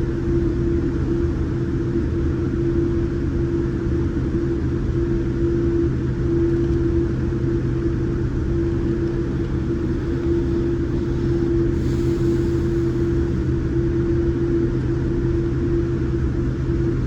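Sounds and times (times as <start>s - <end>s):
mid-pitched hum: 0.0s - 17.0s
airplane cabin engine rumble: 3.1s - 17.0s.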